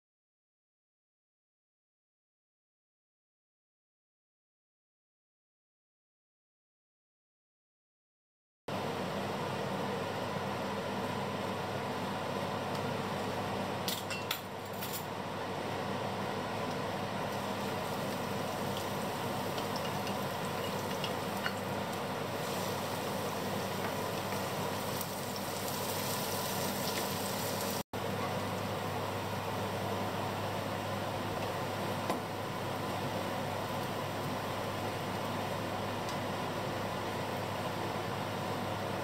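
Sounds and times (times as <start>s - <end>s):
food sizzling in hot oil: 17.2s - 27.9s
wooden spatula stirring in pan: 17.4s - 27.8s.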